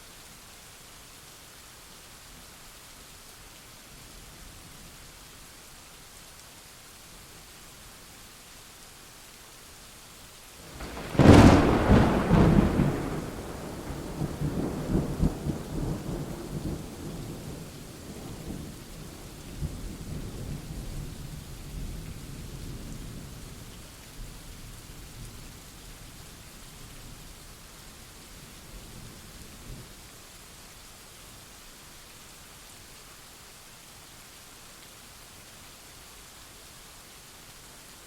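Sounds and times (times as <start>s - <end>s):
steady rain: 0.0s - 38.0s
thunderclap and rolling rumble: 10.7s - 18.8s.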